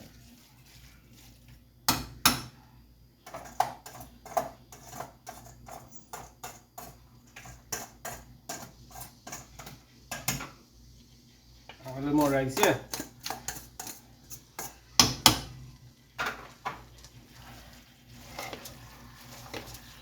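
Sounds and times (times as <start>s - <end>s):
spoon knocking on cooking pot: 14.6s - 15.6s.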